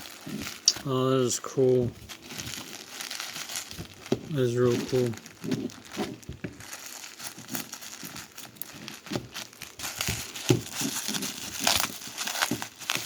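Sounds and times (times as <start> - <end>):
packaging crinkling and rustling: 0.0 - 13.0
sharp crackles: 0.0 - 13.0.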